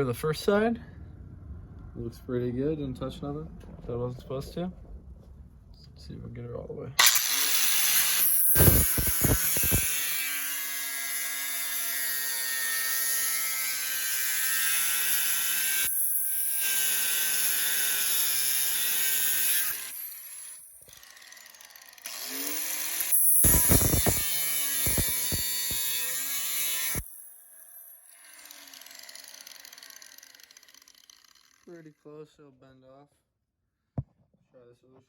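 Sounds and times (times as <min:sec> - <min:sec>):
power cutting tool whining: 0:07.0 - 0:31.7.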